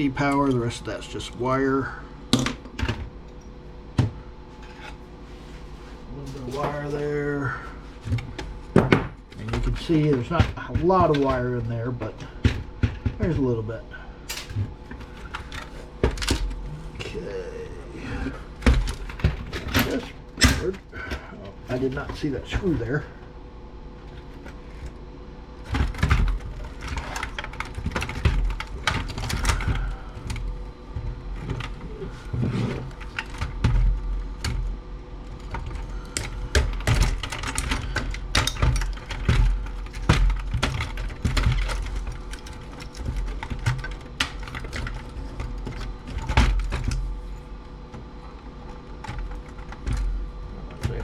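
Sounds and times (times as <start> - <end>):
plastic and metal parts rattling: 25.6 - 34.7, 35.3 - 47.1.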